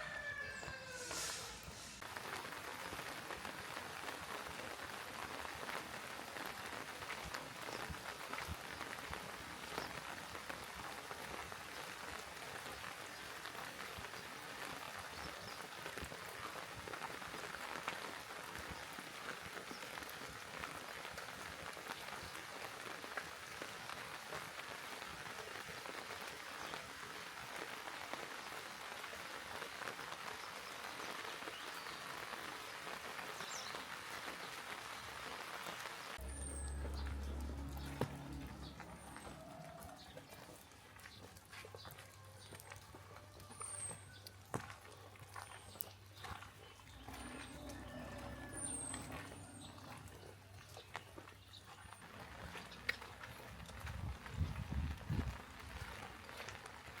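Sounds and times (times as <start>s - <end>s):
steady rain hiss: 0.0s - 41.5s, 43.6s - 57.0s
low hum: 36.2s - 40.1s.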